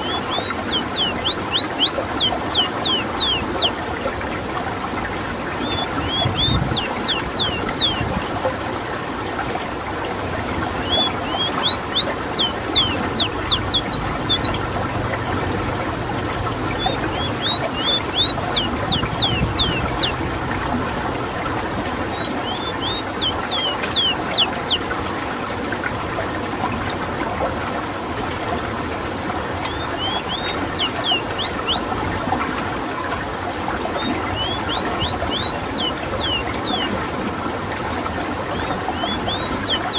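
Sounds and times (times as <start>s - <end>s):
bird singing high downward notes: 0.0s - 3.8s, 5.5s - 8.2s, 10.6s - 15.3s, 16.4s - 20.6s, 22.0s - 24.9s, 29.6s - 32.0s, 34.0s - 37.0s, 38.5s - 39.9s
steady background hiss: 0.0s - 39.9s.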